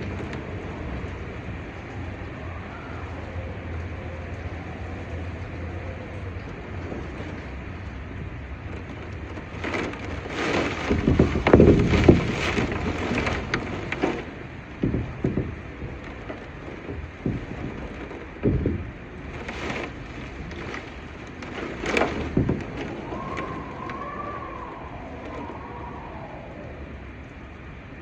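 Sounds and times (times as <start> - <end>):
rain hiss: 0.0 - 28.0.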